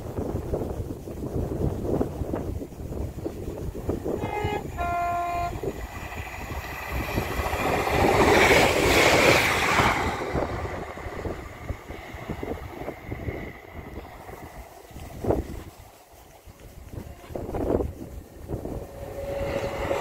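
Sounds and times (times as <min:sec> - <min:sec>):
train running past: 0:00.0 - 0:20.0
wind buffeting microphone: 0:00.0 - 0:20.0
train two-tone horn: 0:04.0 - 0:05.9, 0:16.9 - 0:20.0.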